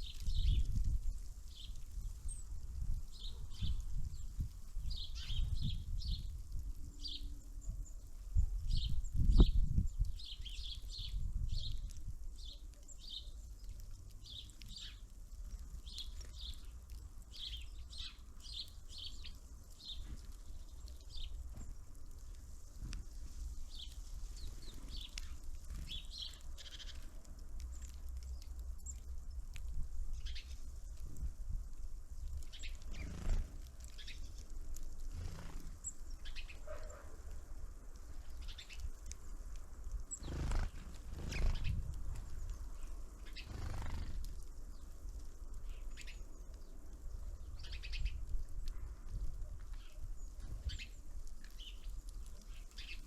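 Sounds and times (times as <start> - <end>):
songbirds chirping: 0.0 - 53.0.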